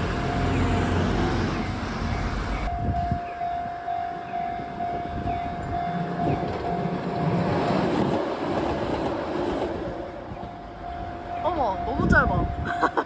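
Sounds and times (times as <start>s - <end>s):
level-crossing bell ringing: 10.5s - 13.0s.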